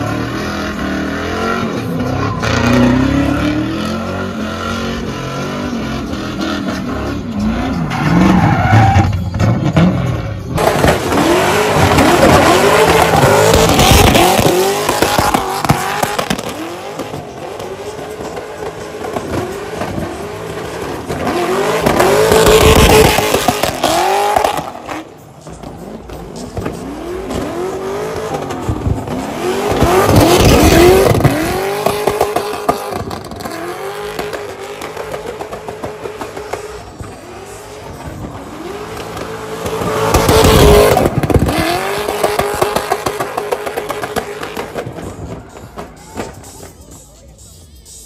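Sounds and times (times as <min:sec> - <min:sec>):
car engines revving: 0:00.0 - 0:48.0.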